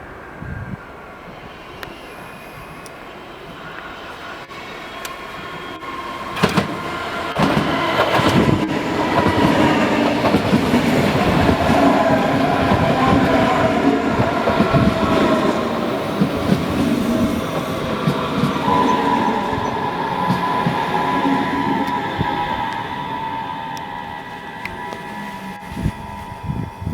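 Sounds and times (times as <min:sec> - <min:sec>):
train rumbling past: 0:00.0 - 0:26.9
steady high tone: 0:00.1 - 0:26.9
wheels clicking over rail joints: 0:06.3 - 0:23.0.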